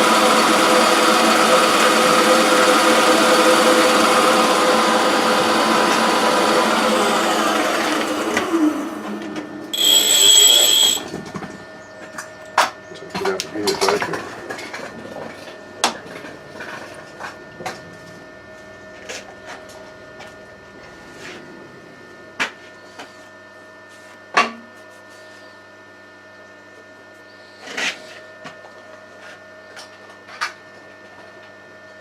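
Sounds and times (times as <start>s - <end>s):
electric motor humming: 9.8s - 11.0s.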